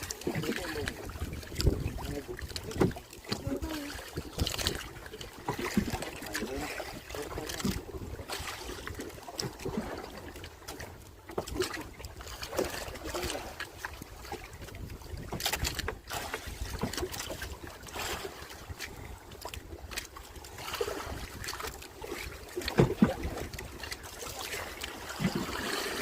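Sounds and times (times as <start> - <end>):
wind buffeting microphone: 0.0 - 3.0
water sloshing and splashing: 0.0 - 26.0.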